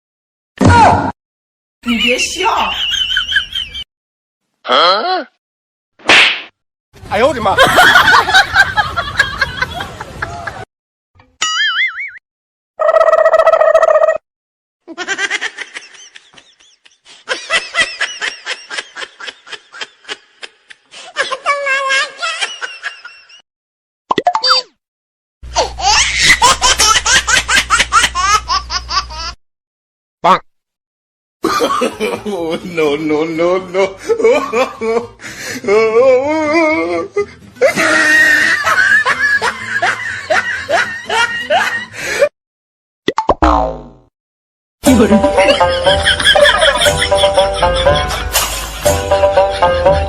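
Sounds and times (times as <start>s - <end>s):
high-pitched laughter: 14.8s - 23.4s, 25.6s - 29.4s, 35.7s - 41.9s, 44.8s - 50.0s
music: 36.2s - 42.0s, 44.8s - 50.0s.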